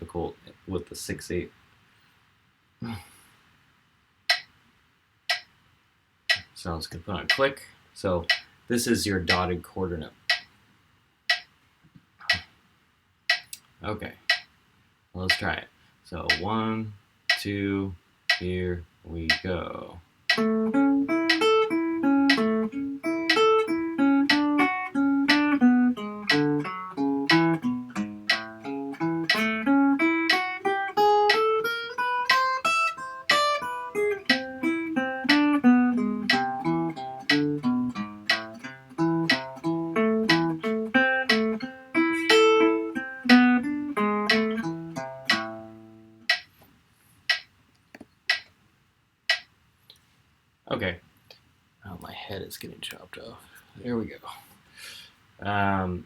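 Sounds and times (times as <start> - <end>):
metronome clicking: 4.3 - 4.5, 5.3 - 5.5, 6.3 - 6.5, 8.2 - 8.5, 10.3 - 10.5, 11.3 - 11.5, 13.3 - 13.7, 14.3 - 14.5, 16.3 - 16.5, 18.3 - 18.5, 19.2 - 19.5, 20.3 - 46.5, 47.3 - 47.5, 48.3 - 48.5, 49.3 - 49.5
slow guitar melody: 20.3 - 46.3.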